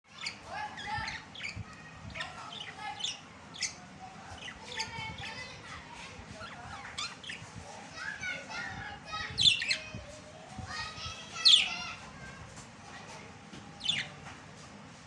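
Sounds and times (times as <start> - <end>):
budgerigars chattering and warbling: 0.1 - 5.7, 6.3 - 7.9, 9.3 - 9.9, 11.0 - 11.8, 13.8 - 14.2.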